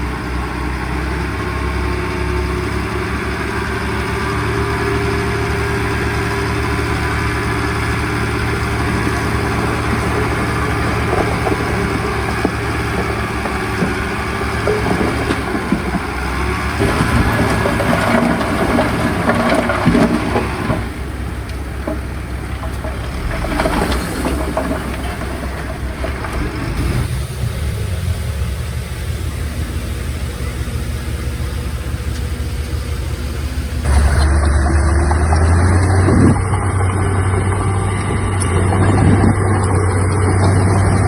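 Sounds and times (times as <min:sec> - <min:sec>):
diesel machinery engine drone: 0:00.0 - 0:41.0
metal clanks and rattles: 0:07.4 - 0:27.2.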